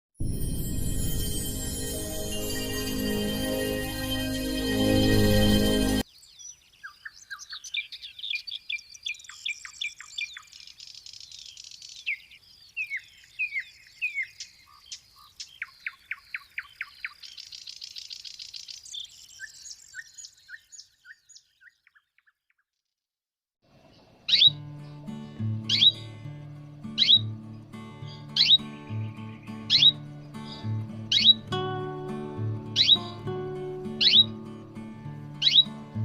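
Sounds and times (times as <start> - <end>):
music: 0.2 - 6.0, 24.5 - 36.0
canary singing: 24.0 - 36.0.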